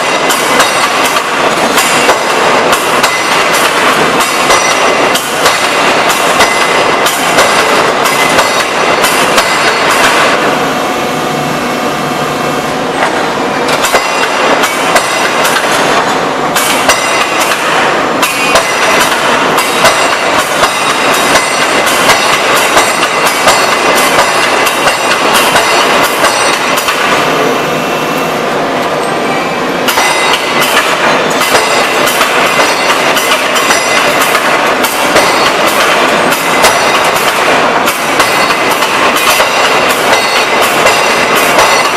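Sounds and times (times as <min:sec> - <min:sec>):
forging hammer striking metal: 0:00.0 - 0:10.6, 0:13.0 - 0:27.2, 0:29.9 - 0:41.9
forge machinery noise: 0:00.0 - 0:41.9.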